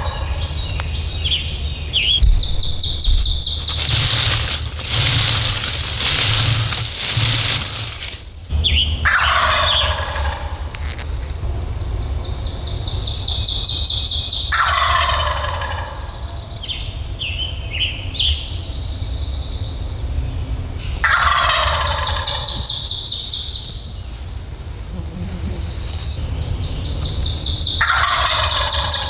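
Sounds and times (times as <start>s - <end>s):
turkey gobbling: 0.0s - 0.7s, 2.4s - 11.1s, 14.5s - 16.5s, 21.0s - 23.3s, 27.0s - 29.0s.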